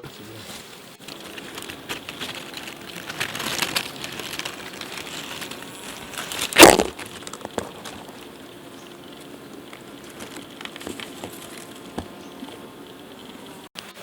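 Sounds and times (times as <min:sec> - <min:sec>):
dry material crunching and rustling: 0:00.1 - 0:13.7.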